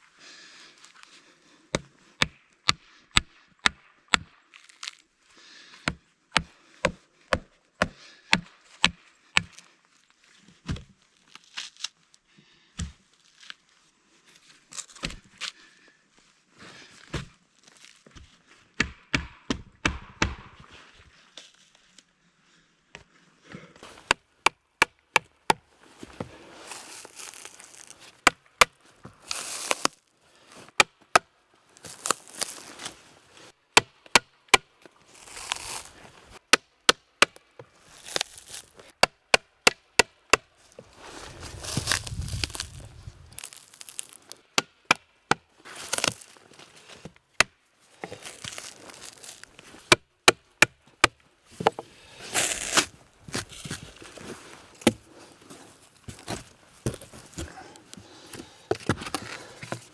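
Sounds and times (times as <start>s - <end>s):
blade chopping wood: 18.8s - 20.6s, 23.8s - 30.0s, 30.7s - 33.0s, 33.8s - 40.5s, 41.5s - 42.8s, 43.4s - 46.3s, 47.0s - 54.1s, 54.7s - 55.1s, 55.8s - 59.9s
wood scraping and tearing: 23.8s - 24.2s, 25.9s - 28.3s, 28.9s - 30.8s, 31.8s - 33.5s, 35.0s - 36.4s, 37.8s - 38.9s, 40.6s - 44.4s, 45.7s - 47.2s, 47.9s - 50.0s, 51.5s - 59.9s.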